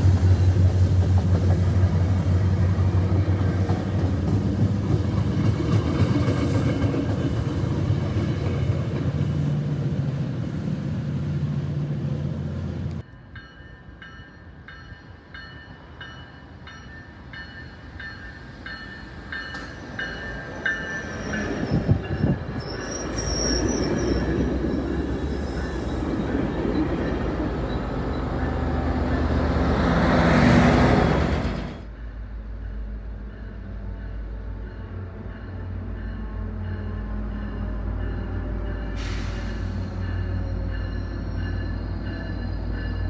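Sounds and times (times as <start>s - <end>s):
train wheels on rails: 0.0s - 32.1s, 33.1s - 43.0s
diesel locomotive passing: 0.0s - 43.0s
crossing bells ringing: 13.0s - 29.7s, 33.3s - 43.0s
high wheel squeal: 20.7s - 26.9s.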